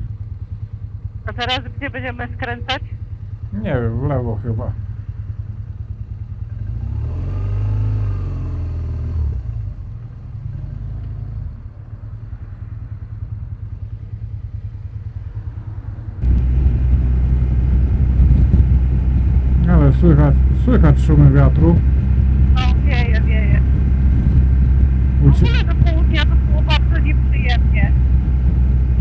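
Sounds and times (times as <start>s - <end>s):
motorcycle engine running: 0.0s - 29.0s
wind rumble on microphone: 9.2s - 29.0s.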